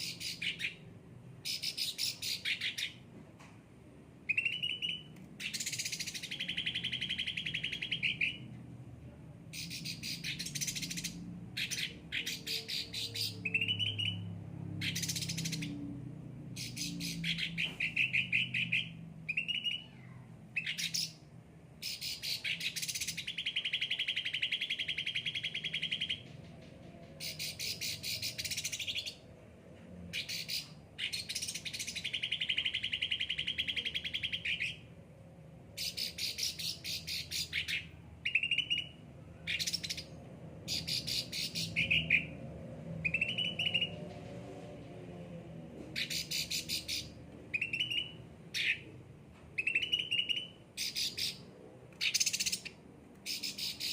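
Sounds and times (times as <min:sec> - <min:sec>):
songbird chattering trills: 0:00.0 - 0:00.8, 0:01.4 - 0:03.0, 0:04.3 - 0:08.4, 0:09.5 - 0:14.2, 0:16.6 - 0:21.2, 0:40.7 - 0:42.3, 0:46.0 - 0:48.8, 0:49.6 - 0:53.9.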